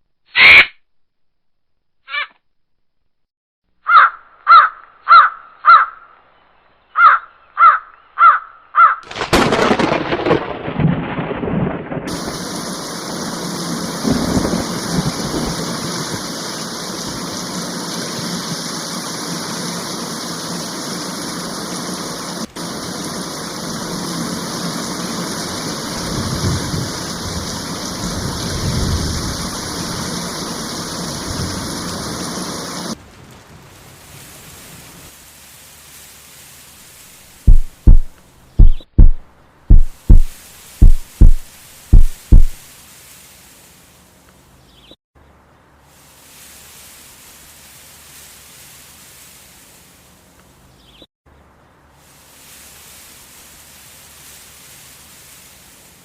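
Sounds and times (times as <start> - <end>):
crow cawing: 3.8 - 6.1, 7.0 - 9.0
steady rain: 9.0 - 39.1, 39.7 - 44.6, 45.7 - 50.8, 51.8 - 56.0
thunder rolling: 9.1 - 18.5, 22.4 - 33.0.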